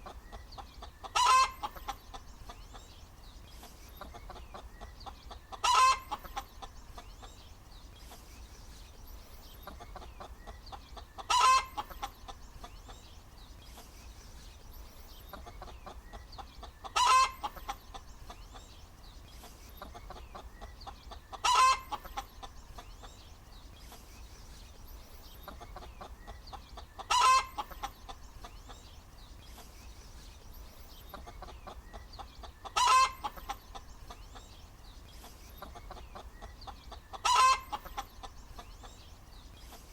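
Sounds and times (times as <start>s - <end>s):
soft hen clucking: 0.0s - 8.6s, 9.4s - 24.3s, 24.9s - 39.9s
hen cackling: 0.8s - 2.2s, 4.1s - 6.5s, 9.7s - 12.4s, 15.4s - 18.0s, 19.9s - 22.6s, 25.5s - 28.2s, 31.2s - 33.8s, 35.6s - 38.3s.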